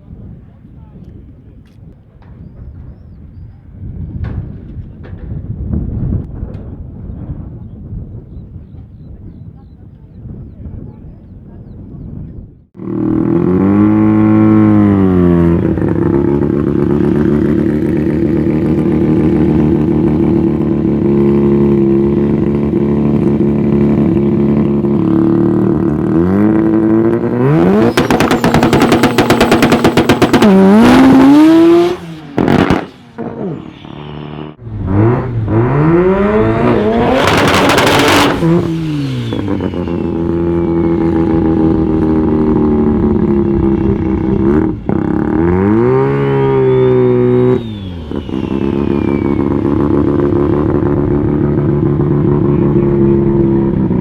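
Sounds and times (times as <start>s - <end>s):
rotary engine revving: 12.8s - 54.0s.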